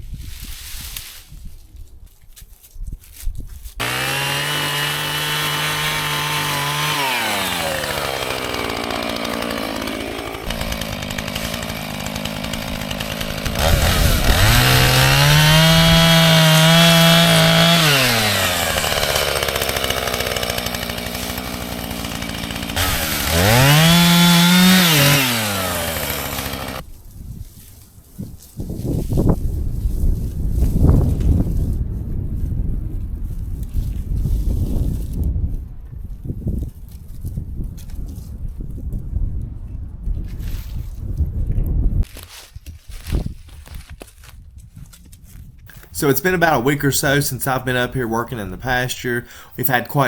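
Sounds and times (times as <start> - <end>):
chainsaw revving and idling: 3.8 - 26.8, 45.7 - 50.0.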